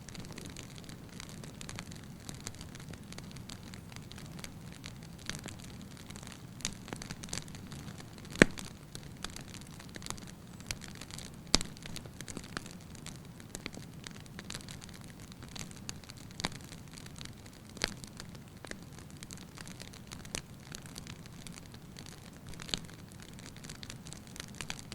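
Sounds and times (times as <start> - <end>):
fire rumbling: 0.0 - 24.9
firewood crackling: 0.0 - 24.9
firewood pops: 7.7 - 8.8.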